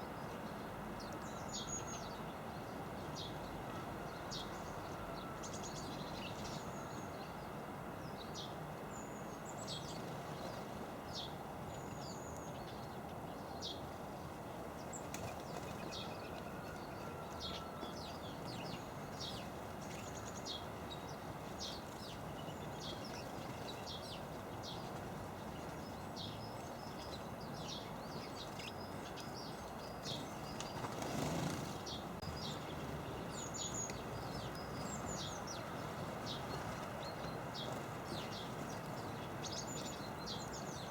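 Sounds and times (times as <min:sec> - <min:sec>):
small birds chirping: 0:14.8 - 0:40.9.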